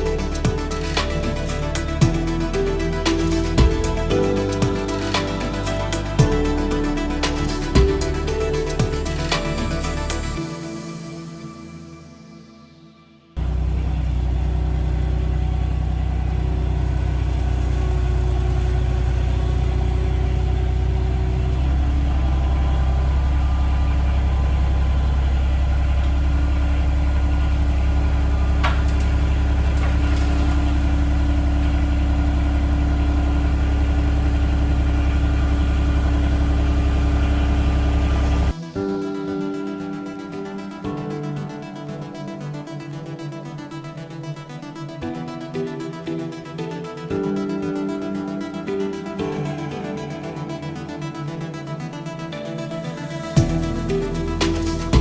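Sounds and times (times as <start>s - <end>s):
skid loader engine running: 13.4s - 38.5s.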